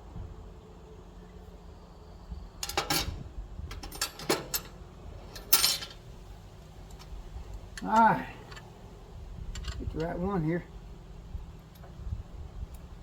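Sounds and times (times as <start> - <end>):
steady low hum: 0.0 - 13.0
metal hand tools clinking: 5.3 - 6.0.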